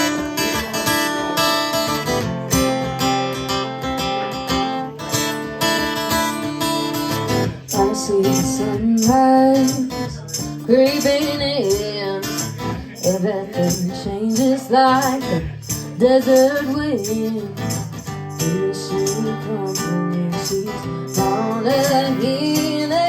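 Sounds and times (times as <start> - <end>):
acoustic guitar strumming: 0.0 - 23.0
woman singing: 7.6 - 23.0.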